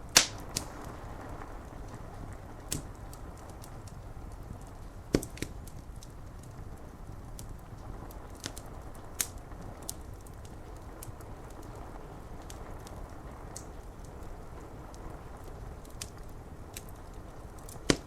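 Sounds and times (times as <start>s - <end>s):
wood fire crackling: 0.0s - 18.0s
rain on window glass: 0.1s - 18.0s.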